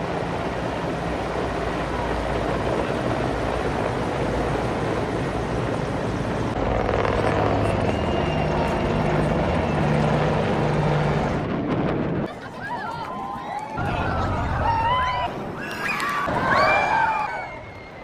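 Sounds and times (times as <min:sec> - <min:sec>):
helicopter rotor and engine drone: 0:00.0 - 0:12.6.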